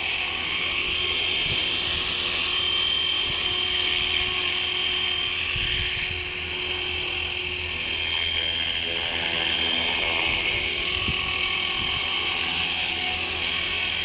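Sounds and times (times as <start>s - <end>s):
rc helicopter rotor whine: 0.0s - 14.0s
wind buffeting microphone: 5.5s - 6.4s, 10.1s - 12.2s.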